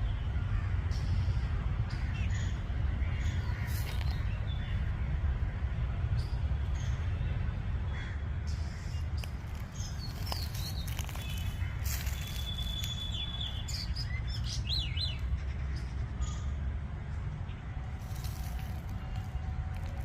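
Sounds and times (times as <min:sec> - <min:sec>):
birds chirping: 0:08.5 - 0:16.5.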